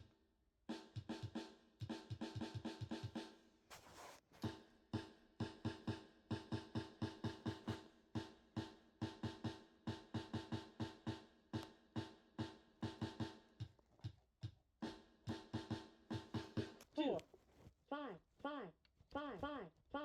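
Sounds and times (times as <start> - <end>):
instrumental rap beat: 4.4 - 13.7, 14.8 - 16.8.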